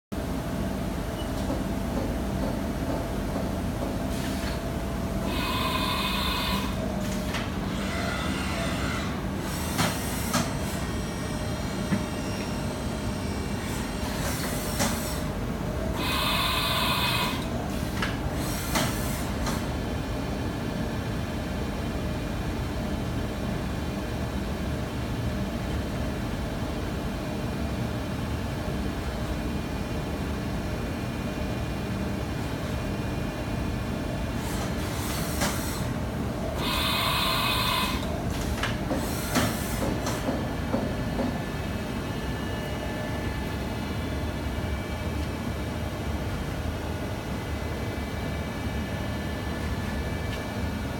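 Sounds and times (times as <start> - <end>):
machine hum: 4.7 - 9.3, 36.0 - 38.7.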